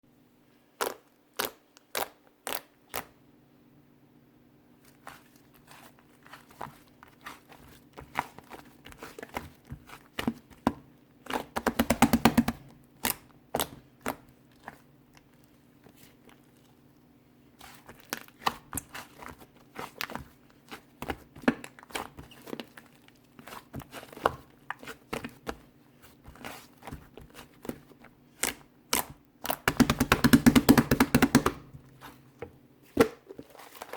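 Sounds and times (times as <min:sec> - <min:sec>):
faint steady hum: 0:00.1 - 0:33.9
slime squished by hands: 0:00.8 - 0:03.2, 0:17.5 - 0:33.9.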